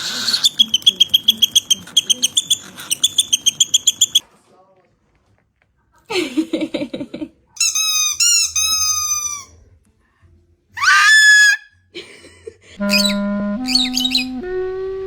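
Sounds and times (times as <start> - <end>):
parrot squeaky calls: 0.0 - 4.2, 7.6 - 9.5, 10.8 - 11.6, 12.9 - 14.4.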